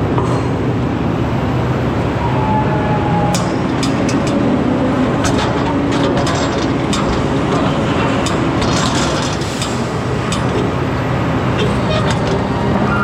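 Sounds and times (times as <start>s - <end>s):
truck engine and road noise: 0.0s - 13.0s
body and load rattling: 3.3s - 13.0s.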